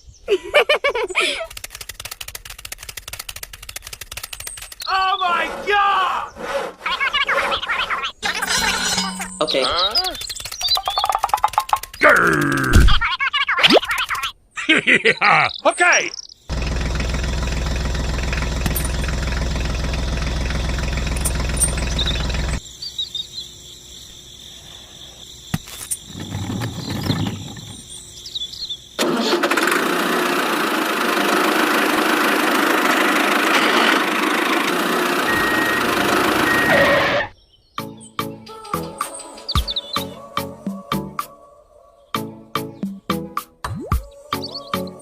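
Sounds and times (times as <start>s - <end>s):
engine running: 16.5s - 22.6s, 29.0s - 37.0s
loud even machine noise: 29.0s - 37.3s.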